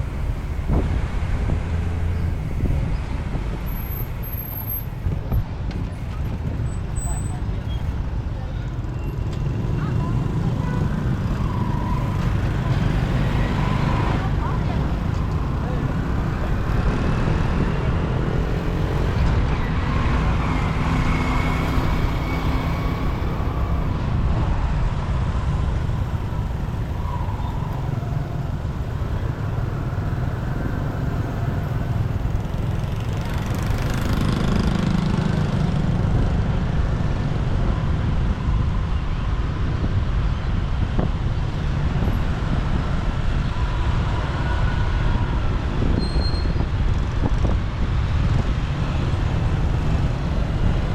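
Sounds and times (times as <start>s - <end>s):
city traffic road noise: 0.0s - 50.9s
loud vehicle passing: 9.5s - 24.2s, 26.0s - 37.0s.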